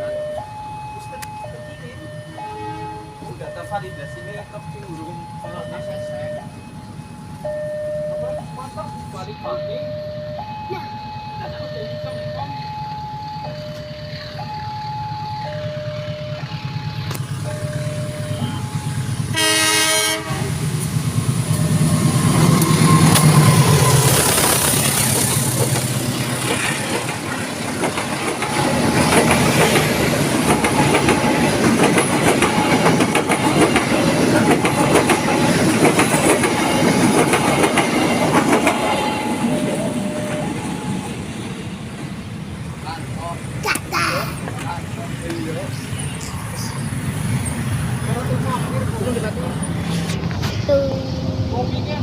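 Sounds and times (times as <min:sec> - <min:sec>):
level-crossing two-tone siren: 0:00.0 - 0:20.5, 0:21.3 - 0:25.8, 0:26.4 - 0:41.6
train horn blast: 0:19.3 - 0:20.7
wheels clattering over rail joints: 0:20.7 - 0:41.0.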